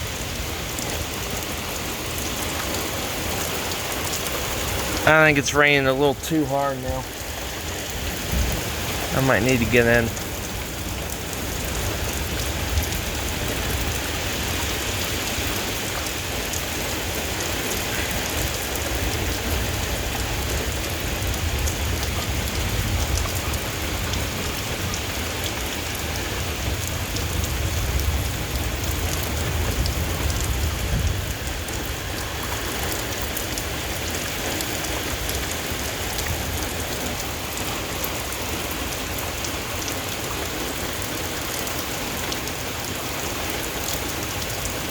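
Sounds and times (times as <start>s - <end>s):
heavy rain pouring: 0.0s - 44.9s
low thunder rumble: 7.0s - 9.1s.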